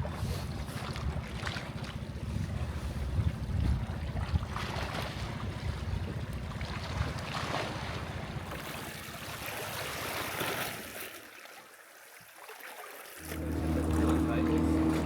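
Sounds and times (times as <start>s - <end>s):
outboard motor rumbling: 0.0s - 8.7s, 13.2s - 15.0s
wind noise on microphone: 2.2s - 6.3s
water noise: 13.2s - 15.0s.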